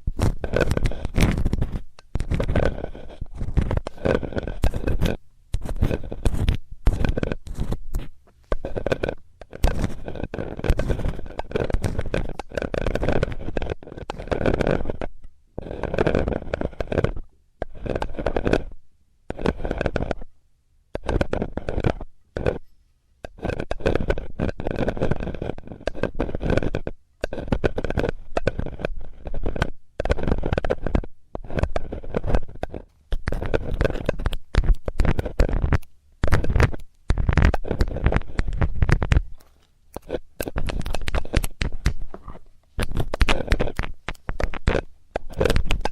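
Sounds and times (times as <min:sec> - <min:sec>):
metal tool scraping near microphone: 0:00.0 - 0:18.7, 0:21.0 - 0:45.9.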